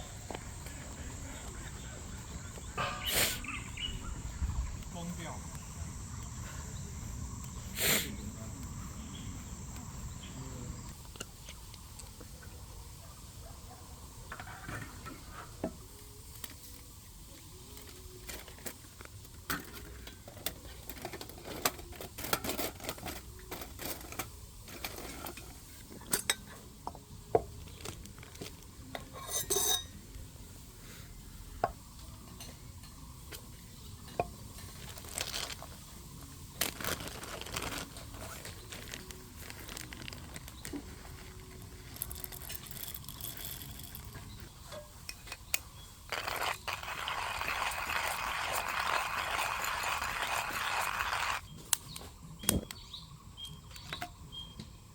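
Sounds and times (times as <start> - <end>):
metal utensils clinking on cookware: 26.0 - 26.6, 29.0 - 30.0.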